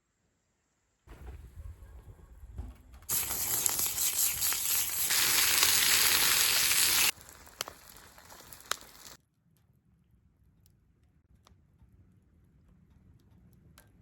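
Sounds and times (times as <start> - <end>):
food sizzling in a pan: 3.1 - 9.2.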